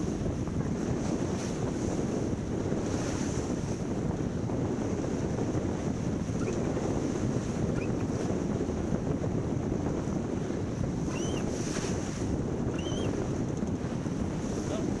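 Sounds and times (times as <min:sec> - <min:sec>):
water rushing past hull: 0:00.0 - 0:15.0
wind buffeting microphone: 0:00.0 - 0:15.0
faint short squeaks: 0:06.3 - 0:06.8, 0:07.6 - 0:08.0, 0:11.1 - 0:11.5, 0:12.7 - 0:13.2.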